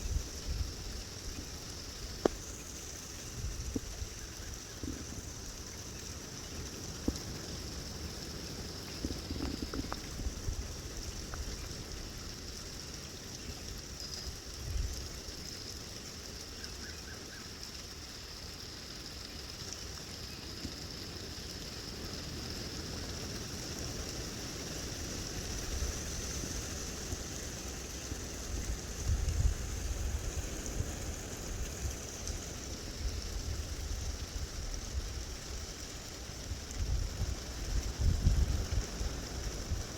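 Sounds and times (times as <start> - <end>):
wind buffeting microphone: 36.8 - 39.9.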